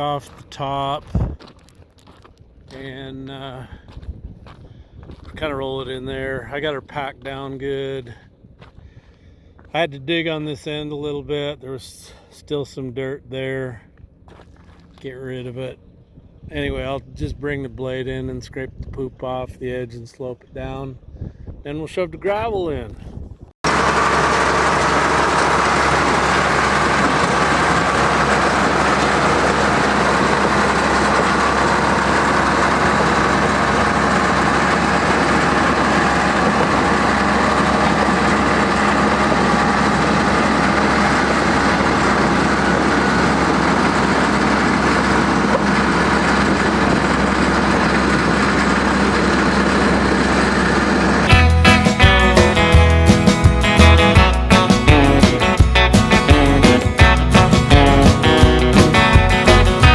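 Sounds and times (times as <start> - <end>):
heavy diesel engine running: 23.6 - 59.9.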